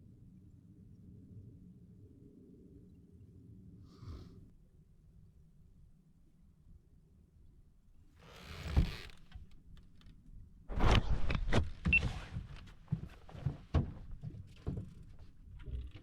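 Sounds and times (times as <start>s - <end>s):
thump: 10.7s - 12.5s.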